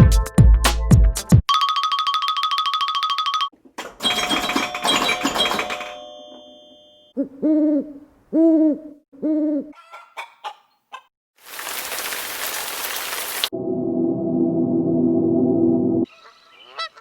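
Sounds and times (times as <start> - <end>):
ringing chime-like tones: 1.5 - 7.1
owl hooting: 7.2 - 10.6.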